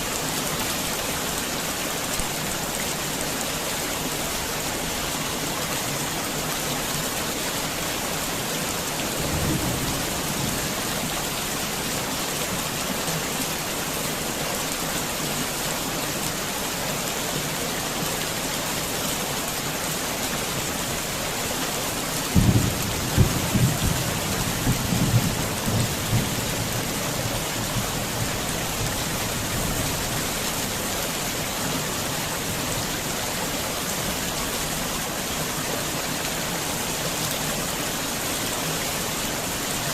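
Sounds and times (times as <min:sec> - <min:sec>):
heavy rain falling: 0:00.0 - 0:39.9
rumble of thunder: 0:09.1 - 0:11.2, 0:22.4 - 0:30.0.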